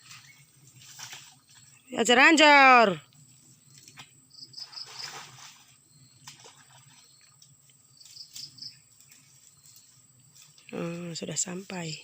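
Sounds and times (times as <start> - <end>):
crickets chirping: 0.0 - 12.0
faint rural background hum: 0.0 - 12.0.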